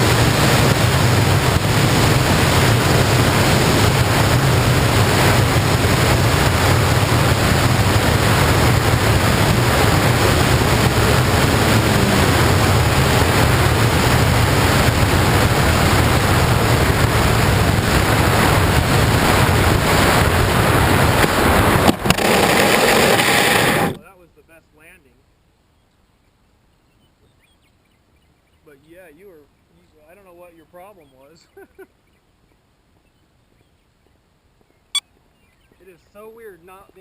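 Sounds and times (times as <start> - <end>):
air buffeting a camera: 0.1 - 24.0.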